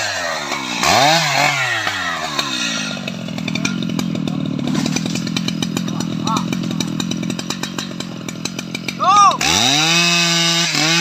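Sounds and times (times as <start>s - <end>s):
chainsaw revving and running: 0.0s - 11.0s.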